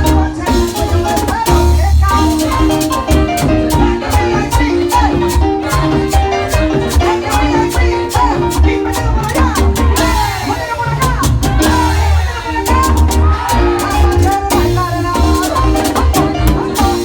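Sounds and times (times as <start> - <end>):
live merengue band music: 0.0 - 17.0.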